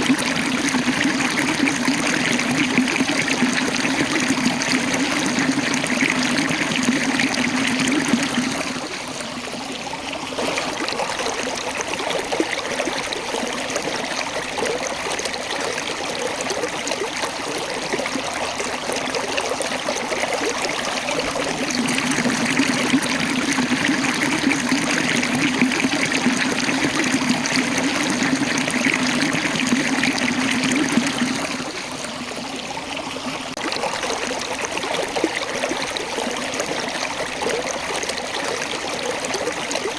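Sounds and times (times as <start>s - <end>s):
water rushing over rocks: 10.2s - 39.9s.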